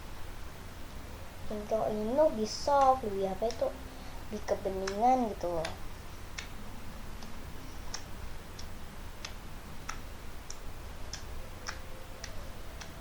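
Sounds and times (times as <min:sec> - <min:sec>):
slime clicking by hand: 0:04.8 - 0:06.6, 0:07.2 - 0:13.0.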